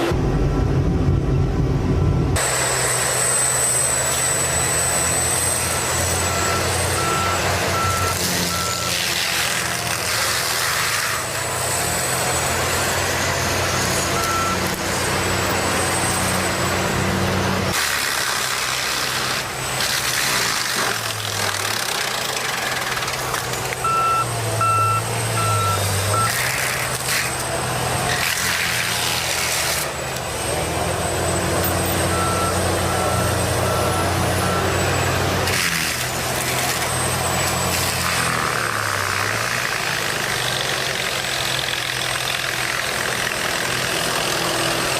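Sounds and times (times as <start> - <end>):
heavy diesel machine running: 0.0 - 44.9
reversing alarm beeps: 3.2 - 9.0, 13.6 - 14.8, 23.8 - 26.4, 31.6 - 35.2.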